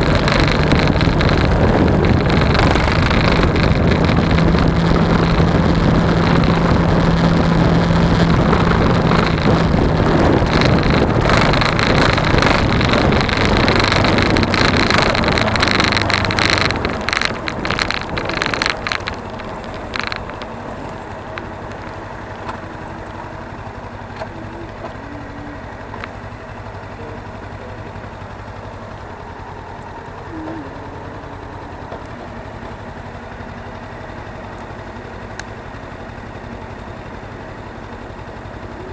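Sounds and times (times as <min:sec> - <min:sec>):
wind noise: 0:00.0 - 0:21.9
sharp clicks: 0:00.0 - 0:23.2
motorcycle engine: 0:00.0 - 0:38.9.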